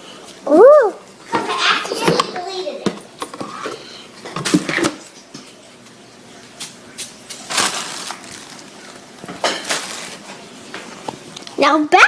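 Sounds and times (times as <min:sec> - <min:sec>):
crunching rustling noises: 0:06.6 - 0:11.3.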